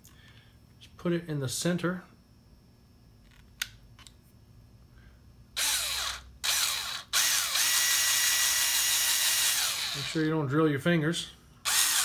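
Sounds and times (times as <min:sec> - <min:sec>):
electric drill boring: 0:05.6 - 0:10.2, 0:11.7 - 0:12.0.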